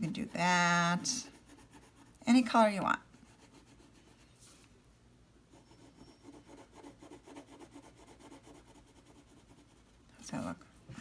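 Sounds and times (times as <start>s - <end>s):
crayon colouring on paper: 0.0s - 2.1s, 5.6s - 9.9s.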